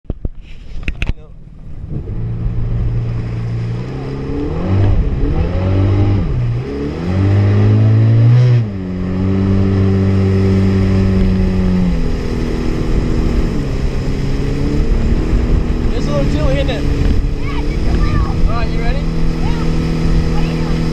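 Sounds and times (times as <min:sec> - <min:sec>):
jet ski engine revving: 0:01.4 - 0:20.9.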